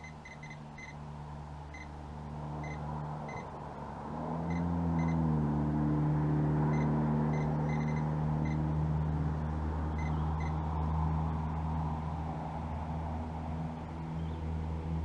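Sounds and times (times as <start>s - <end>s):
short high beeps: 0.0s - 1.0s, 2.6s - 3.5s, 4.5s - 5.2s, 6.7s - 8.6s
engine running and revving: 0.0s - 15.0s.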